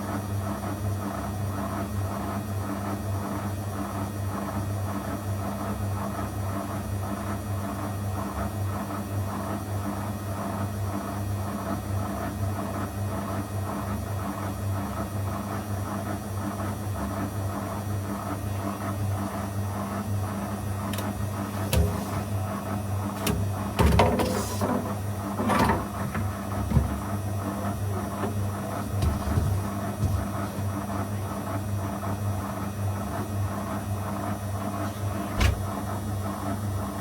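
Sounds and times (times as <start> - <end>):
washing machine running: 20.5 - 36.0.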